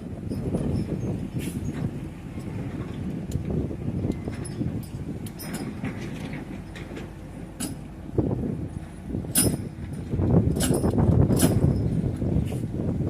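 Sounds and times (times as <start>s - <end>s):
excavator engine rumble: 0.0s - 13.0s
sharp metallic clanks: 9.3s - 11.9s.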